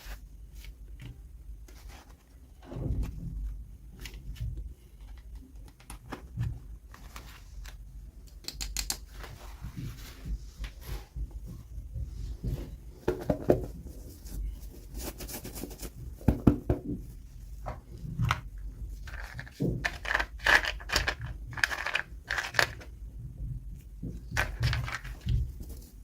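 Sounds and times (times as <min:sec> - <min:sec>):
toy packaging clicks and rustles: 0:18.2 - 0:22.9, 0:24.3 - 0:25.5.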